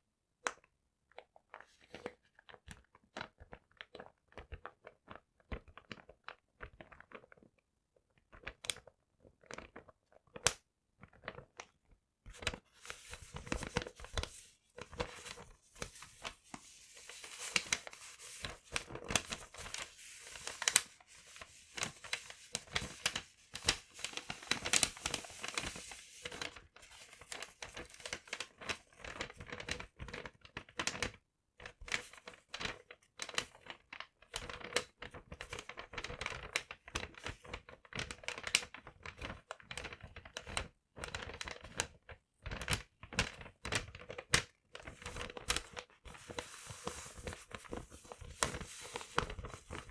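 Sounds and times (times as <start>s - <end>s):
paper crumpling and rustling: 12.3s - 31.0s, 31.8s - 40.1s, 42.6s - 49.9s.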